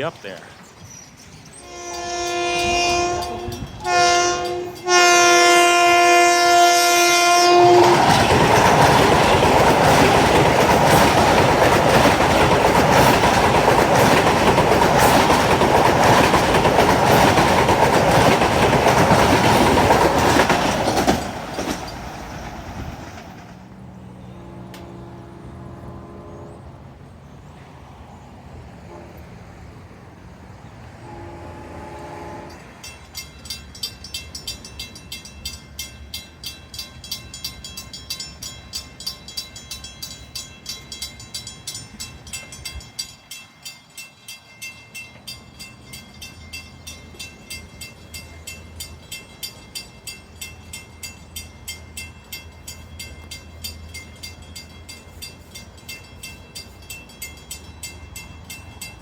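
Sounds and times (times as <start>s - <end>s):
crossing warning bell ringing: 1.1s - 22.3s, 31.0s - 59.0s
train horn: 1.6s - 8.2s, 24.0s - 27.0s, 28.8s - 29.6s, 30.9s - 32.8s.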